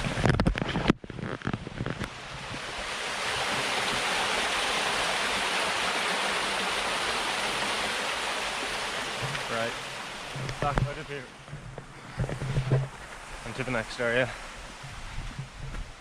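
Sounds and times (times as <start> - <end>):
small waterfall rushing: 2.0 - 11.4, 13.0 - 14.8
rustling and knocking: 9.2 - 9.5, 10.3 - 13.2.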